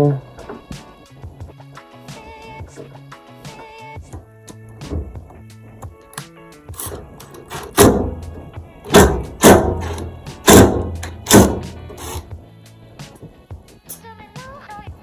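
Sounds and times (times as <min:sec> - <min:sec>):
background music: 0:00.0 - 0:15.0
loud knocks and thuds: 0:04.8 - 0:05.4, 0:06.9 - 0:12.2.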